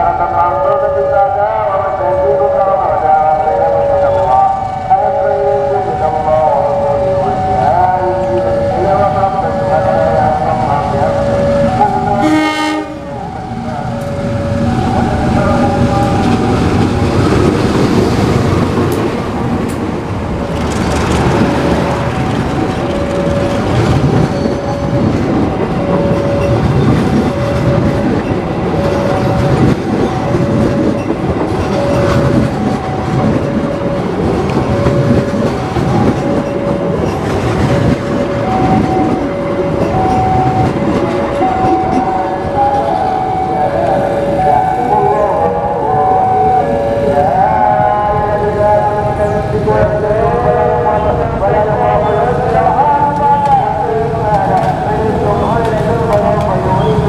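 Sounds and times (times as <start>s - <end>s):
train rumbling on rails: 0.0s - 57.0s
two-tone warning beeps: 25.8s - 37.0s, 38.3s - 46.7s.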